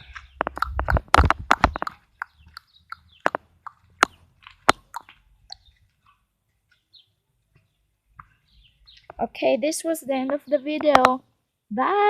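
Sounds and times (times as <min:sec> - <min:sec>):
chickens pecking food: 0:00.0 - 0:07.6.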